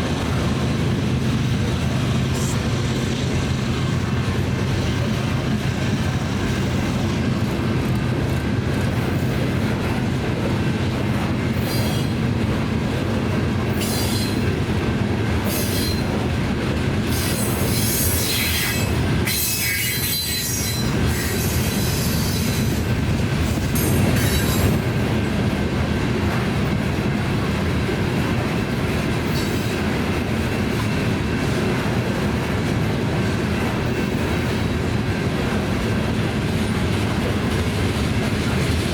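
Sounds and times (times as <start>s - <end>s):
train wheels rumbling on rail: 0.0s - 38.9s
wheel squeals and screeches: 13.7s - 14.4s, 17.1s - 22.8s, 23.8s - 24.8s.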